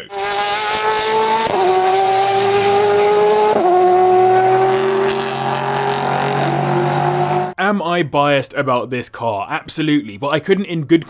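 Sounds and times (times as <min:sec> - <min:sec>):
car engine revving through gears: 0:00.0 - 0:07.6.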